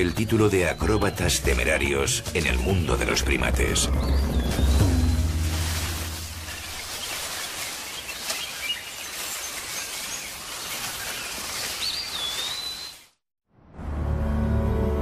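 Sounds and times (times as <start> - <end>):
bird chirps: 0.0 - 13.2
whistled bird call: 6.4 - 13.1.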